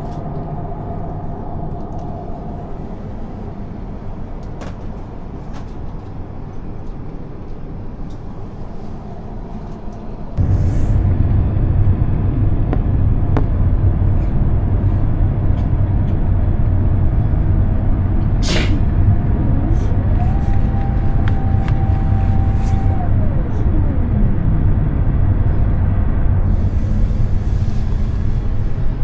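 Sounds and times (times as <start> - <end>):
airliner cabin rumble: 0.0 - 29.0
mechanical whine: 9.2 - 29.0.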